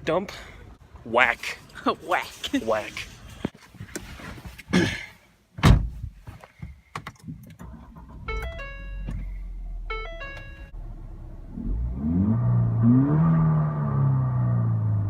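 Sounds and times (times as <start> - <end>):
heavy thunks: 5.6 - 7.4
car engine idling: 7.6 - 11.9
electronic chime tones: 8.3 - 9.1, 9.9 - 10.7.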